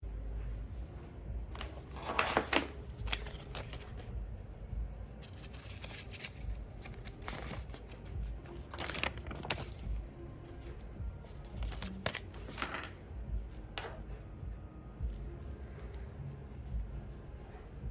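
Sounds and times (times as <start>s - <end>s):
handling noises rustling and clicking: 1.6s - 4.2s, 5.2s - 13.1s.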